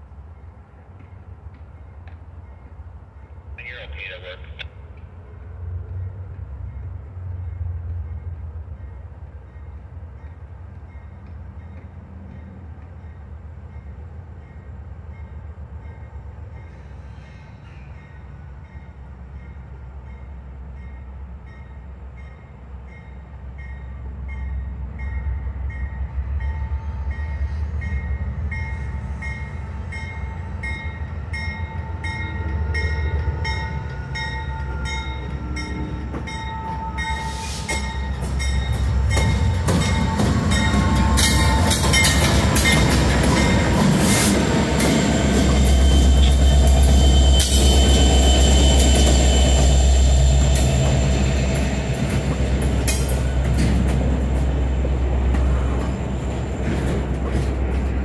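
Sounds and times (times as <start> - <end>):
freight train passing: 0.0 - 58.0.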